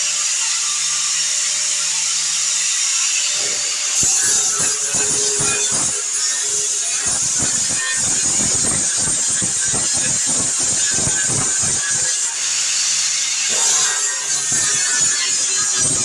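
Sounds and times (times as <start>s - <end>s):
welder arc crackling: 3.8s - 16.0s.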